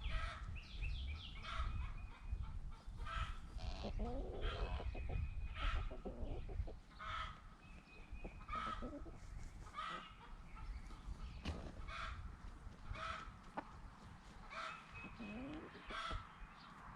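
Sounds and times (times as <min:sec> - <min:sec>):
chickens clucking: 0:01.4 - 0:16.8.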